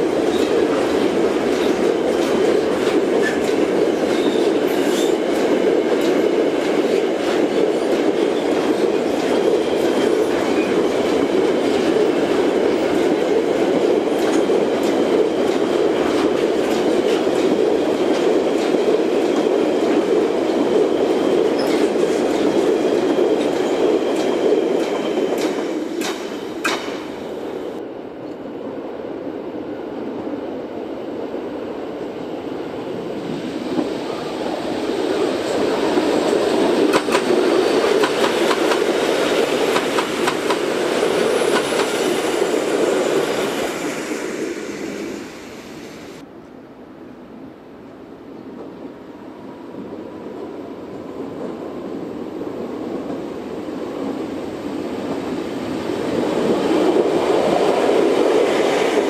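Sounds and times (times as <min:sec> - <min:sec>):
electric train passing: 0:00.0 - 0:46.3, 0:48.6 - 0:59.0
sharp clanks: 0:25.4 - 0:27.1.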